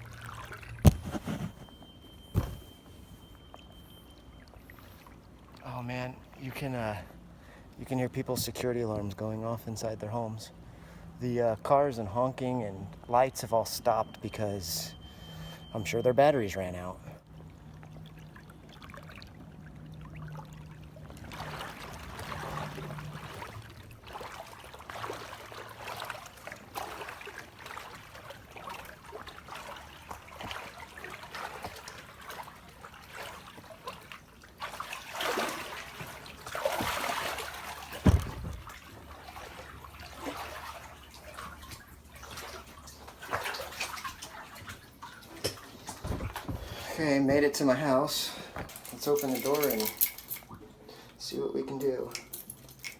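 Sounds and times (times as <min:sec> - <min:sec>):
floodwater sloshing around wading person: 0:00.0 - 0:08.0, 0:08.9 - 0:51.4
thump: 0:00.8 - 0:01.6, 0:02.3 - 0:02.7, 0:38.0 - 0:38.7.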